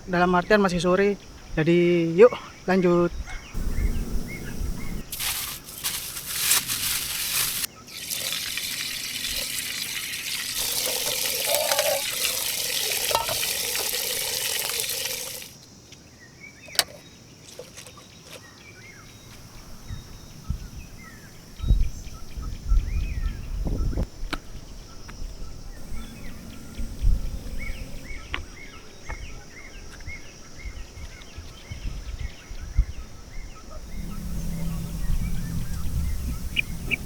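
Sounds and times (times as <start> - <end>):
small birds chirping: 0.0 - 8.2, 15.9 - 37.0
water running: 3.6 - 15.6.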